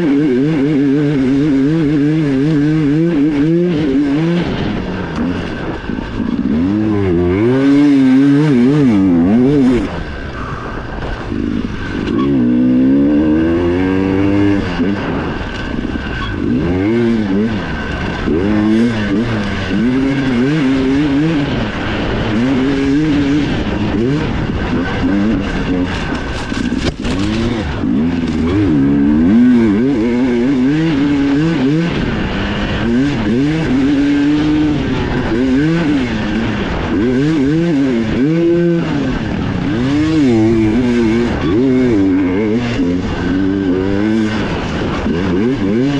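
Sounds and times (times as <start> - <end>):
dirt bike engine revving: 0.0 - 45.9.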